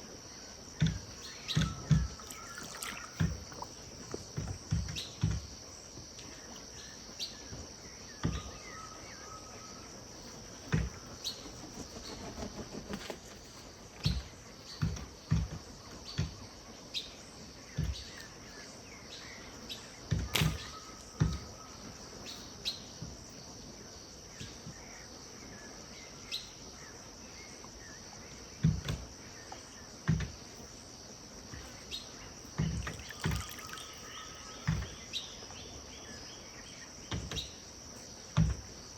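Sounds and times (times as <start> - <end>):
insect drone: 0.0 - 38.9
water lapping at bank: 0.8 - 5.8, 32.5 - 35.1.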